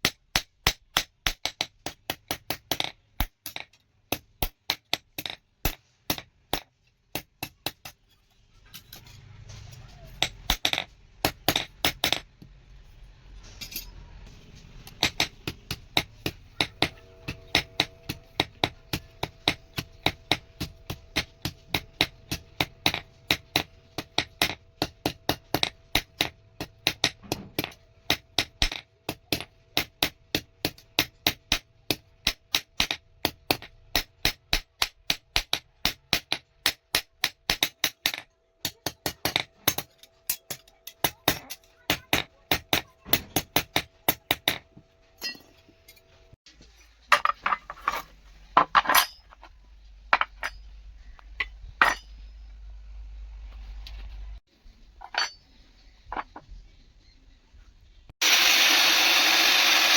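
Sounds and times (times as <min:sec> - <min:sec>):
hammer striking steel on anvil: 0:14.8 - 0:46.0, 0:50.2 - 0:52.5
steady metallic ringing tone: 0:16.8 - 0:20.8.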